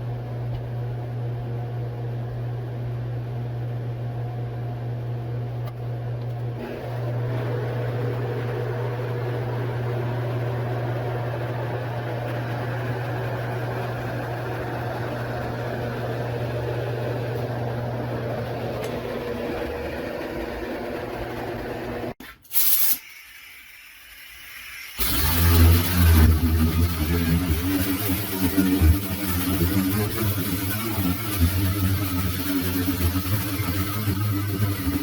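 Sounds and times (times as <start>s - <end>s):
machine humming and hissing: 6.4s - 22.2s, 23.4s - 35.0s
short loud high hiss: 22.2s - 27.4s.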